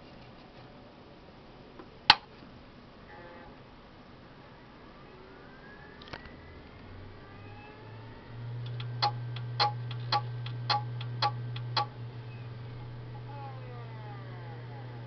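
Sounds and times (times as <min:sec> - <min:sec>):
hard drive spinning hum: 0:06.3 - 0:15.0
hard drive head clicking: 0:08.6 - 0:11.9.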